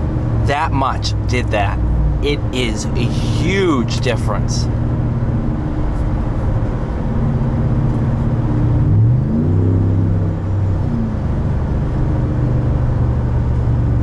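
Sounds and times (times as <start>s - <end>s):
truck engine revving: 0.0s - 7.8s.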